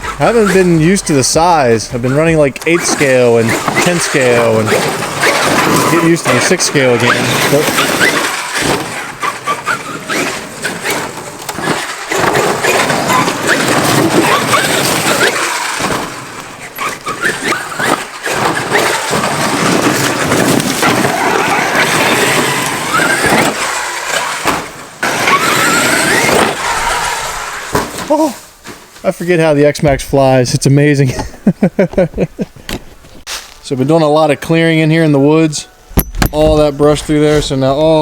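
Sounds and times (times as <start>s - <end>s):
rc truck motor whine: 2.1s - 27.8s.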